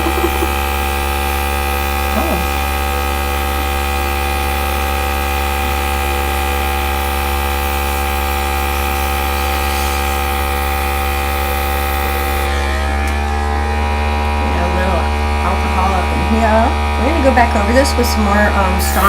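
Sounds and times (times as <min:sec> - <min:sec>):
electric air gun blowing: 0:00.0 - 0:13.6, 0:18.6 - 0:19.0.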